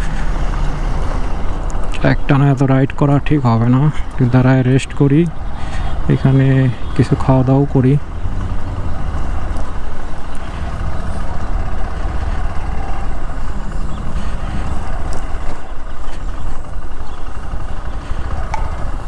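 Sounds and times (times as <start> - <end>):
motorcycle engine running: 8.0 - 19.0.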